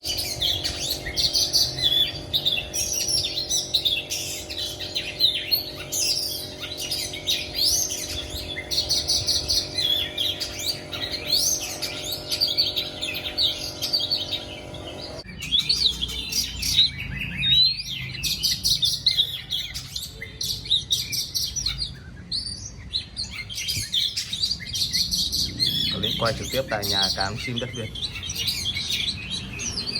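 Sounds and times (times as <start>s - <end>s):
steady low hum: 0.0s - 15.3s
songbirds whistling and chirping: 0.0s - 29.9s.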